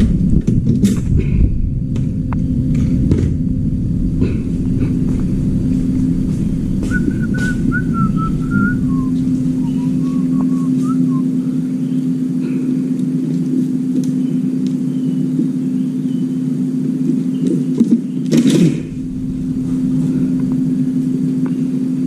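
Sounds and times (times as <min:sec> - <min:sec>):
loud low hum: 0:00.0 - 0:17.3, 0:18.1 - 0:22.0
whistled tune: 0:06.7 - 0:11.6.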